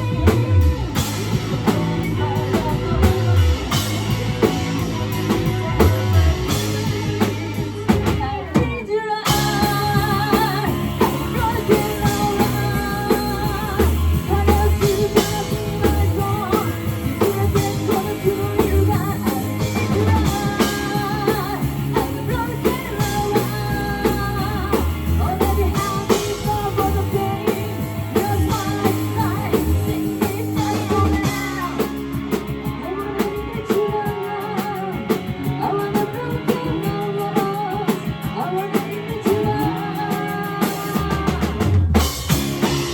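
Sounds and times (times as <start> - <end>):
person singing: 0.0 - 42.9
rock band playing: 0.0 - 42.9.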